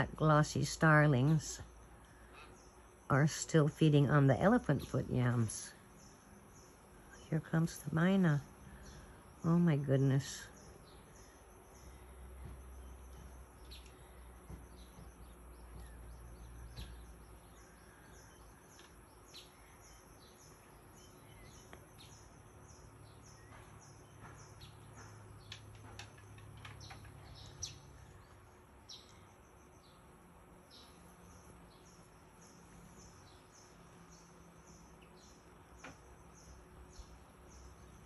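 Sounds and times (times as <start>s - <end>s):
low steady hum: 0.0s - 38.0s.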